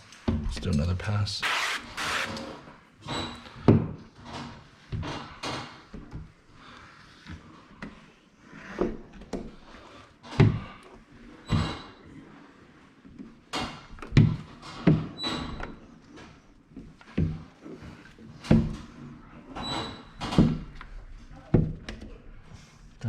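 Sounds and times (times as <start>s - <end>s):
squeegee rubbing on glass: 1.4s - 2.4s.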